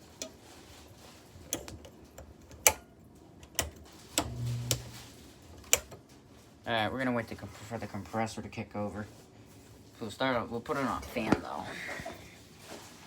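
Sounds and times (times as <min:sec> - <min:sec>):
air conditioner clicking: 0:00.0 - 0:00.7, 0:01.3 - 0:06.2
low electrical hum: 0:00.0 - 0:13.0.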